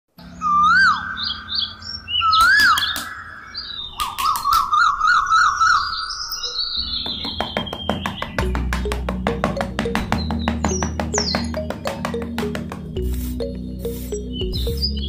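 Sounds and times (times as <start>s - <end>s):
whistle-like chirping: 0.4s - 7.3s, 13.2s - 15.0s
music: 6.7s - 15.0s.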